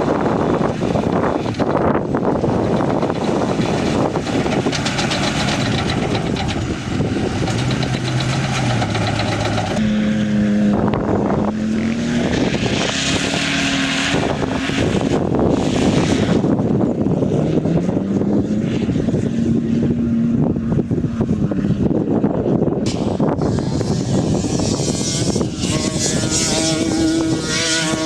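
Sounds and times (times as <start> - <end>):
off-road vehicle engines: 0.0 - 28.0
wind on microphone: 0.0 - 28.0.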